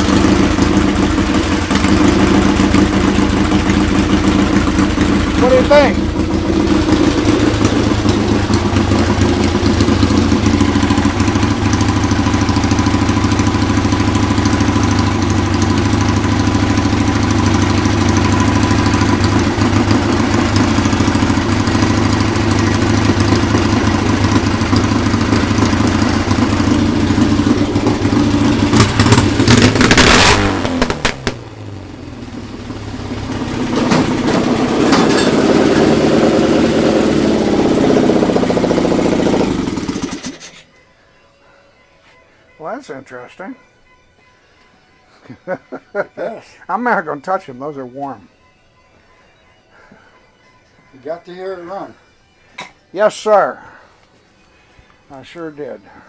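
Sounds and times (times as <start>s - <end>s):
motorcycle engine idling and revving: 0.0s - 40.6s.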